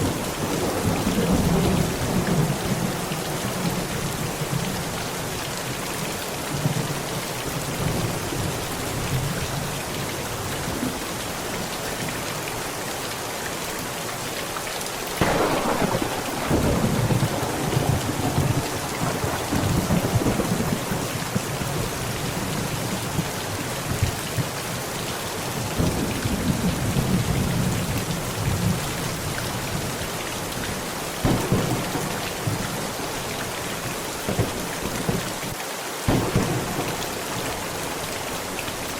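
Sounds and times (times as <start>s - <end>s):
heavy rain on a tent: 0.0s - 38.9s
thunder cracking and rumbling: 15.2s - 23.3s, 31.2s - 38.0s.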